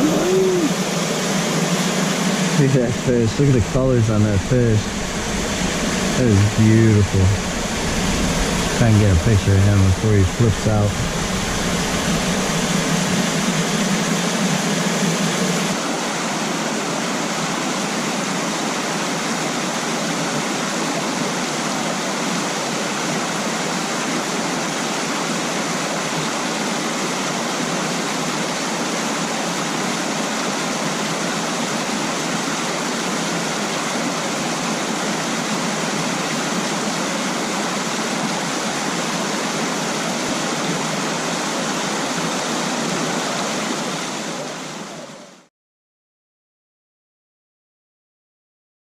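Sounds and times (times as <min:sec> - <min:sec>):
stream rushing over rocks: 0:15.4 - 0:45.4.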